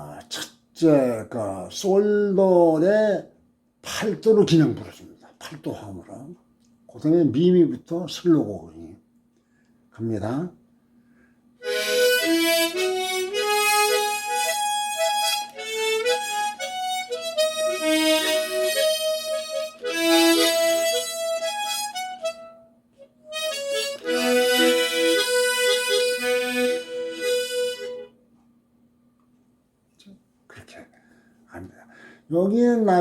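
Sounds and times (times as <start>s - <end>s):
harmonica melody with chords: 11.6s - 28.2s.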